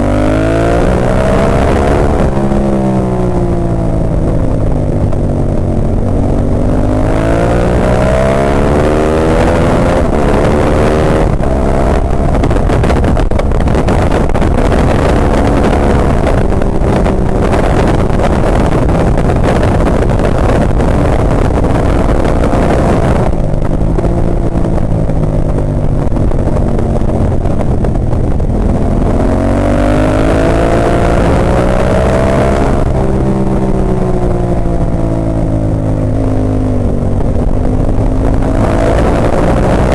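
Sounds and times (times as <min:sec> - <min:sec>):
motorcycle engine revving: 0:00.0 - 0:39.9
wind rush: 0:00.0 - 0:39.9.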